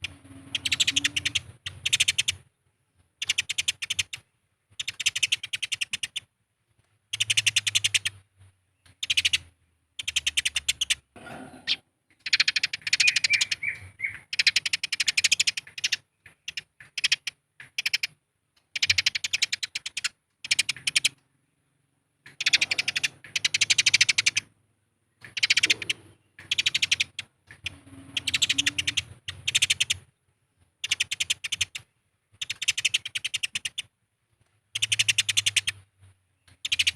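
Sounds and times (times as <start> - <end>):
sparrows chirping: 0.0 - 36.9.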